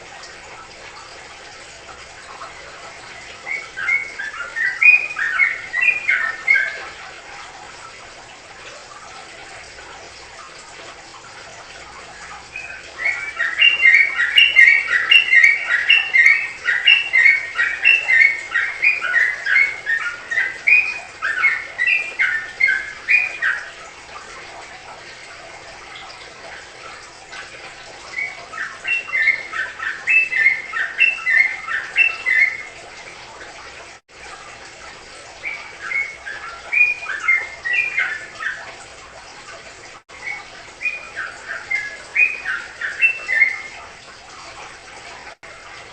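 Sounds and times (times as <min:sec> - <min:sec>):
songbird singing bubbling chirps: 0:02.2 - 0:07.0, 0:12.1 - 0:24.1, 0:28.0 - 0:32.9, 0:35.3 - 0:38.8, 0:40.1 - 0:43.9.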